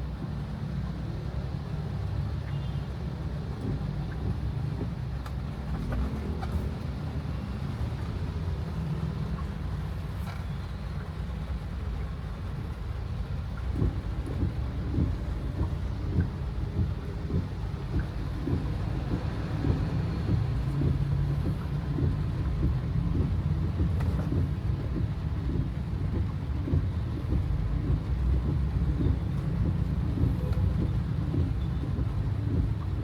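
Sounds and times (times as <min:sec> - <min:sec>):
engine and road rumble: 0:00.0 - 0:33.0
rain hitting car: 0:00.0 - 0:33.0.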